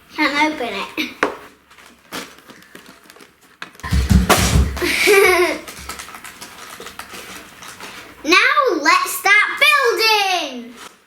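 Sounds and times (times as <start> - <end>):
plastic package crinkling: 1.5 - 8.2.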